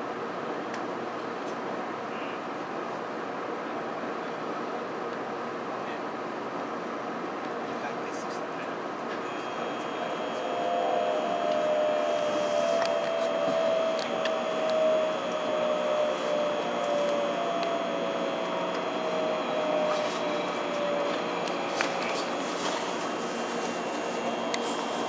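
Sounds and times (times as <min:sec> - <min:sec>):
train running: 0:09.0 - 0:25.0
train motor whine: 0:09.1 - 0:25.0.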